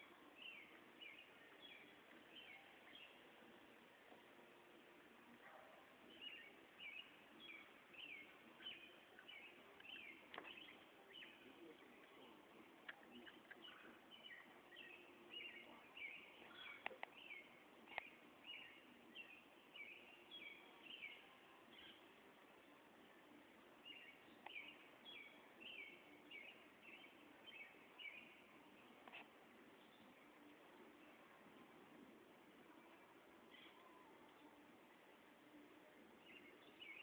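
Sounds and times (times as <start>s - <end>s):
faint bird chirping: 0.0s - 37.0s.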